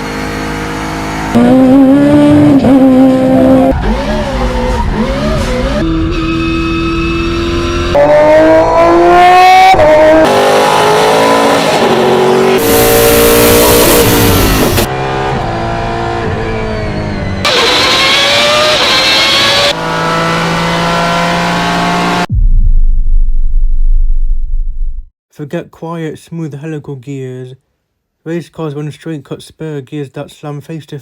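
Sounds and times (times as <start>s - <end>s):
race cars accelerating: 0.0s - 22.3s
gearbox whine: 12.6s - 18.0s.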